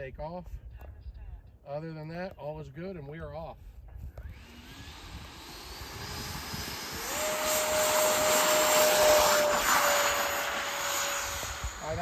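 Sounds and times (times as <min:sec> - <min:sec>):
electric ducted fans whining: 0:04.2 - 0:12.0
rush of air: 0:04.3 - 0:12.0.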